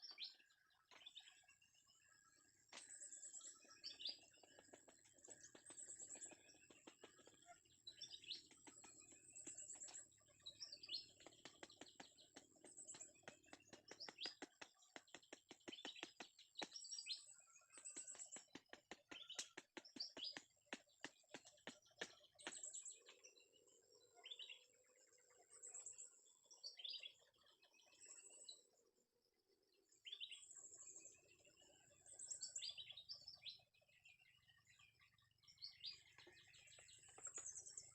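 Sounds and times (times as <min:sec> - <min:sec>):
birds chirping: 0:00.0 - 0:24.7, 0:34.3 - 0:37.9.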